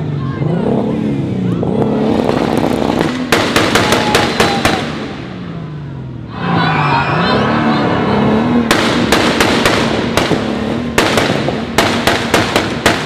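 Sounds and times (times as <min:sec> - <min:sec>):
car engine revving: 0:00.0 - 0:13.0
exhaust bangs and pops: 0:02.1 - 0:05.3, 0:08.6 - 0:13.0.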